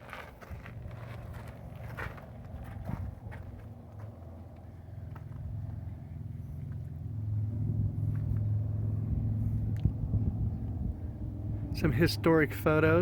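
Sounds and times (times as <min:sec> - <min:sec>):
passing vehicle engine rumble: 0:00.0 - 0:13.0
faint footstep-like clicks: 0:01.4 - 0:05.5.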